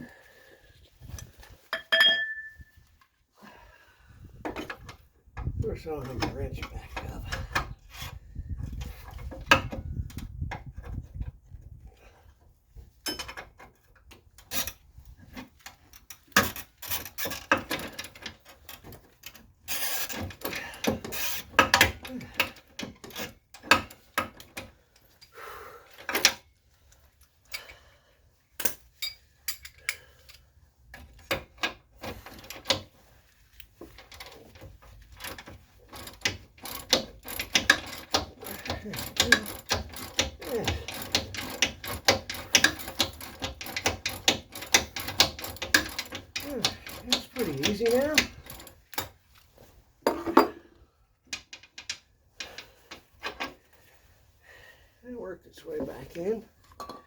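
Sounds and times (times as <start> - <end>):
metal clanks: 1.7 - 2.7
ratchet wrench clicking: 35.9 - 49.0.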